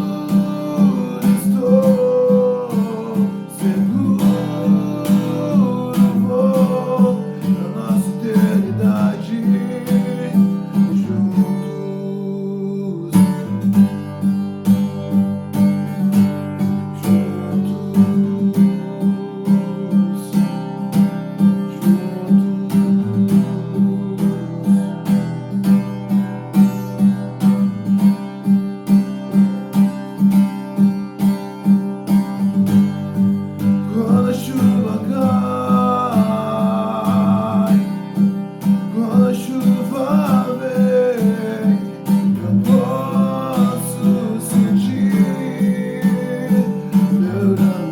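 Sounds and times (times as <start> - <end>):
person singing: 0.0 - 13.6, 33.9 - 38.2, 38.9 - 47.9
acoustic guitar strumming: 0.0 - 47.9.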